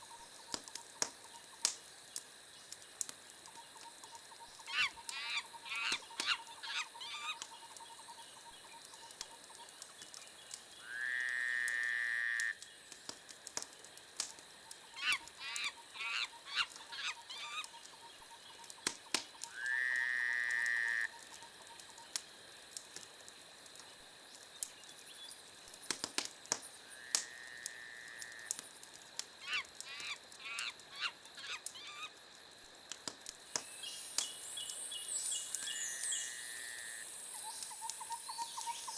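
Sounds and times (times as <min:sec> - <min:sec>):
wood fire crackling: 0:00.0 - 0:10.9, 0:11.6 - 0:19.7, 0:20.5 - 0:35.7
animal calls: 0:04.6 - 0:07.7, 0:14.9 - 0:17.9, 0:29.4 - 0:32.1.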